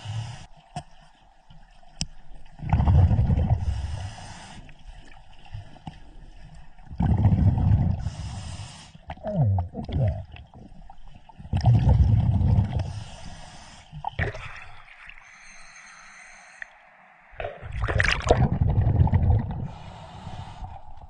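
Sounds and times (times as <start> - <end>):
bubbling rush of exhaled air: 2.6 - 3.9, 6.9 - 8.3, 11.5 - 13.2, 14.0 - 15.7, 17.4 - 21.0.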